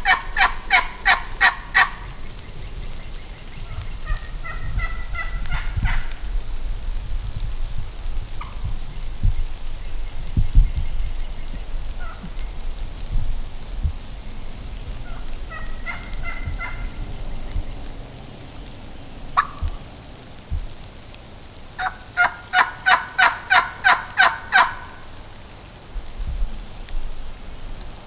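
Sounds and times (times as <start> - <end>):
turkey hen yelping: 0.0 - 2.0, 3.6 - 6.2, 15.0 - 17.0, 19.4 - 19.7, 21.8 - 25.0.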